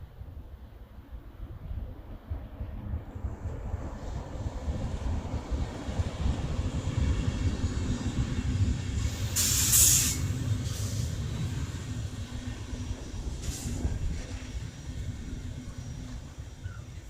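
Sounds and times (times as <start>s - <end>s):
train wheels rumbling on rails: 0.0s - 17.0s
air hiss: 9.0s - 11.2s, 13.4s - 14.0s.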